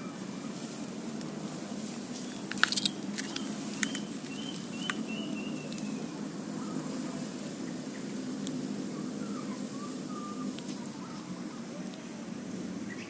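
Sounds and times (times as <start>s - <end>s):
sharp clicks: 2.4s - 5.0s.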